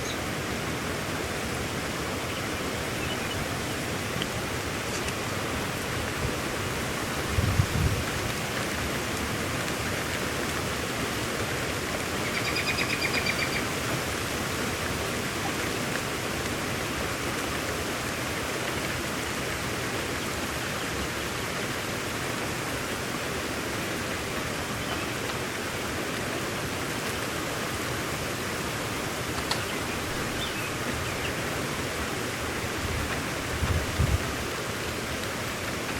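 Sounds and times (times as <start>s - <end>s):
rain: 0.0s - 35.9s.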